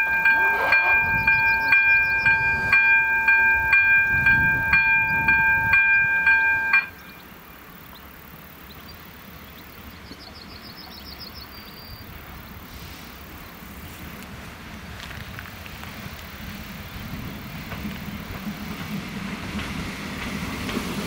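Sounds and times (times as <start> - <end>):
level crossing warning bell: 0.0 - 7.2
bird trill: 0.2 - 7.3.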